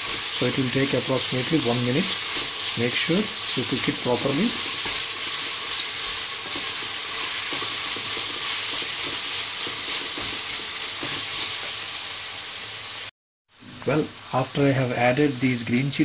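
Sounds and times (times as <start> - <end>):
onions sizzling in hot oil: 0.0 - 16.0
wooden spoon scraping a pot: 1.4 - 11.8.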